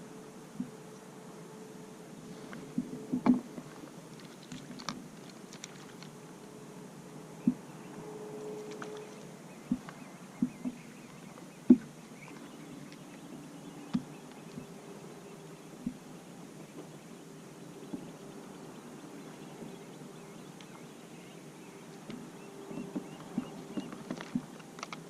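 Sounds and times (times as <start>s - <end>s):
faint steady hum: 0.0s - 25.0s
knocks and bumps on kayak: 2.8s - 3.5s, 9.7s - 10.8s, 11.7s - 11.9s.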